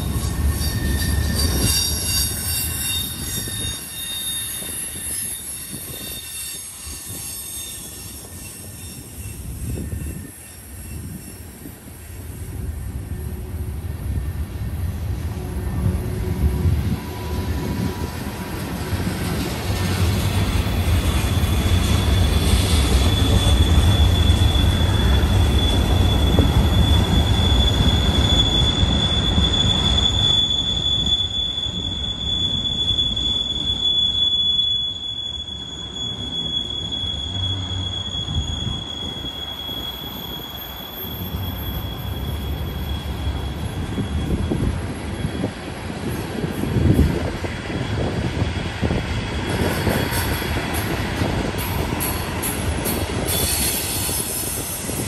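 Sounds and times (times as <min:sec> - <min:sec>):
high-pitched wheel squeal: 0:00.0 - 0:13.5, 0:15.4 - 0:55.0
train wheels rumbling on rails: 0:00.0 - 0:55.0.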